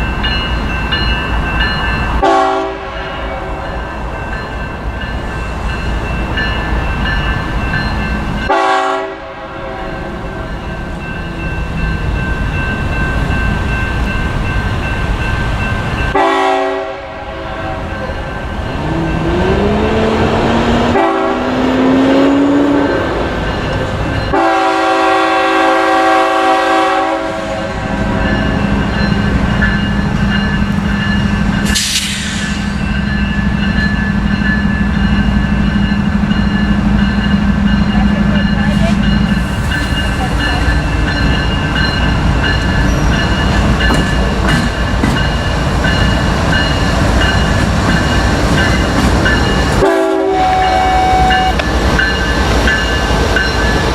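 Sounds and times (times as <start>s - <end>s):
train rolling rumble: 0.0s - 53.9s
train horn blasts: 2.2s - 3.6s, 8.5s - 10.3s, 16.2s - 18.1s, 20.3s - 22.9s, 24.3s - 28.2s, 49.8s - 51.6s.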